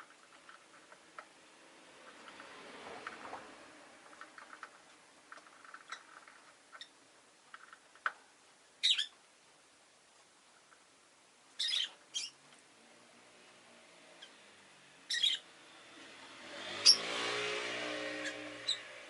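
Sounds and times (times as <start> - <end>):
lovebird chirping: 8.8 - 9.2, 11.6 - 12.4, 15.1 - 15.5, 18.2 - 18.9.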